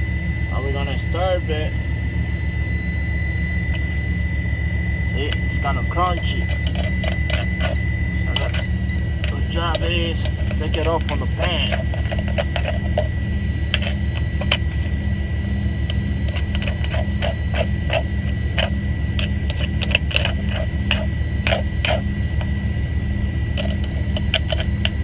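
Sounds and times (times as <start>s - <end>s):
engine drone with high whine: 0.0s - 25.0s
utensil scraping rice in a pan: 16.3s - 22.1s.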